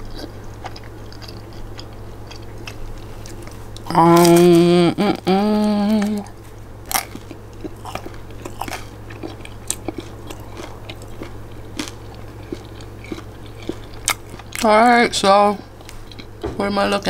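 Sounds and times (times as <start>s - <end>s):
person chewing: 0.0s - 14.8s, 15.6s - 16.4s
faint low hum: 0.0s - 17.0s
person humming mmm: 3.9s - 6.4s.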